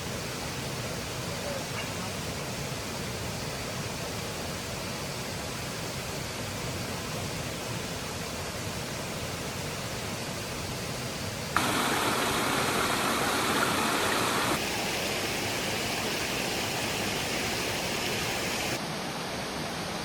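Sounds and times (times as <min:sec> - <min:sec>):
steady rushing hiss: 0:00.0 - 0:20.0.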